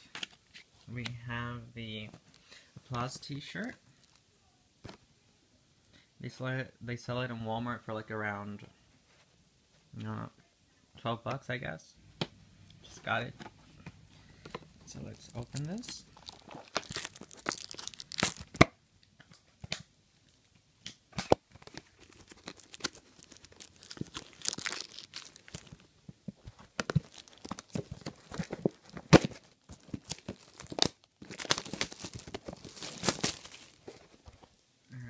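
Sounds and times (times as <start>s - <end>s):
packaging tearing and crinkling: 15.0s - 18.7s, 21.2s - 34.1s.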